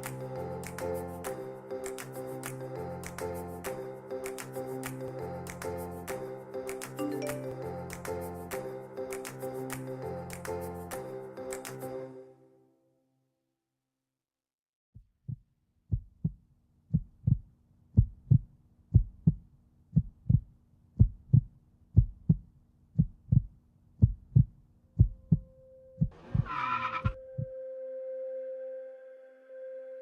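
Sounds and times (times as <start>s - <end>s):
heartbeat thumps: 15.0s - 27.5s.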